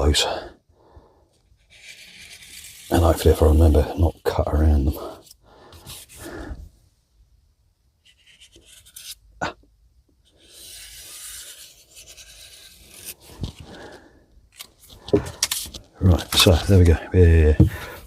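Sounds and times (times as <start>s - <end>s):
marker pen scratching: 1.6s - 3.8s, 8.0s - 9.2s, 10.2s - 13.4s.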